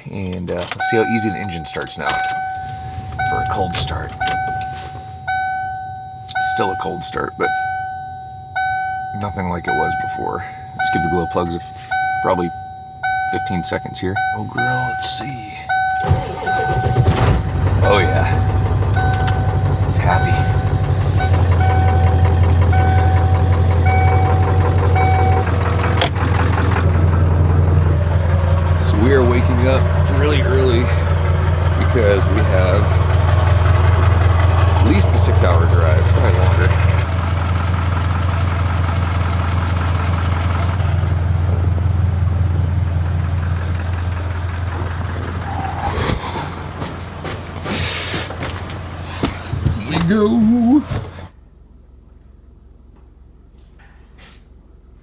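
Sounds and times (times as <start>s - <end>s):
diesel engine idling with knock: 0.0s - 51.3s
pitched electronic beeps: 0.8s - 17.2s, 19.0s - 25.5s.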